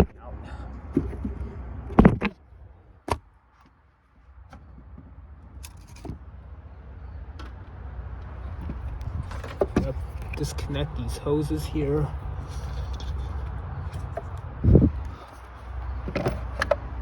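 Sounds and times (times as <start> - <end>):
low rumble: 8.2 - 15.3
plastic housing clicks and knocks: 16.0 - 16.9.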